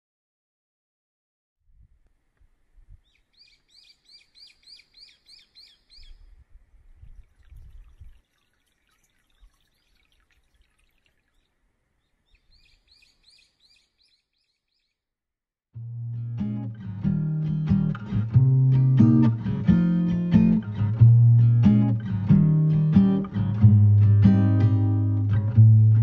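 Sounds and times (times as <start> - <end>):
faint outdoor ambience: 1.8 - 14.3
bird chirping: 2.9 - 15.0.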